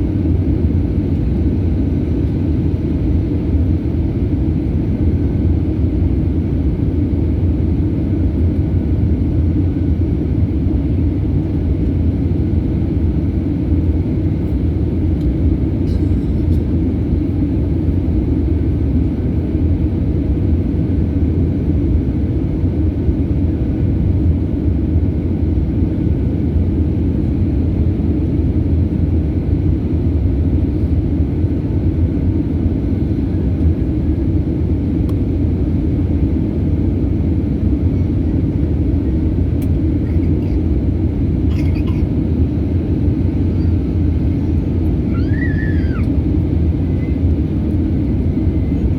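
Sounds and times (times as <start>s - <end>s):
airliner rumble: 0.0s - 48.9s.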